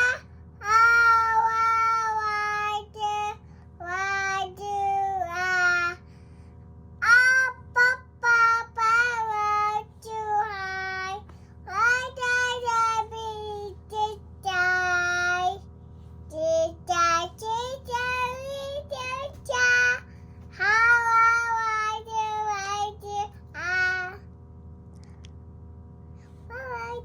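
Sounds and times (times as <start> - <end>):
child singing: 0.0 - 6.0, 7.0 - 15.6, 16.3 - 24.2, 26.5 - 27.0.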